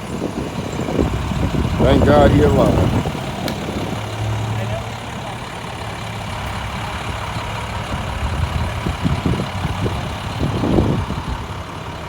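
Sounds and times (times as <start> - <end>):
vehicle engine idling: 0.0 - 12.0
low rumbles and knocks: 0.2 - 4.5.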